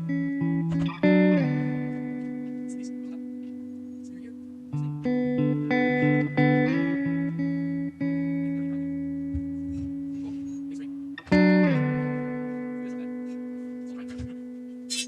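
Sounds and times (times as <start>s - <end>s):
guitar chords ringing: 0.0s - 15.0s.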